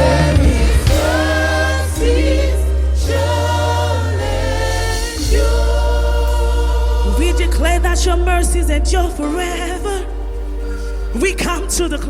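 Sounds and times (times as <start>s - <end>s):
gospel choir singing: 0.0s - 12.0s
low sustained accompaniment: 0.0s - 12.0s.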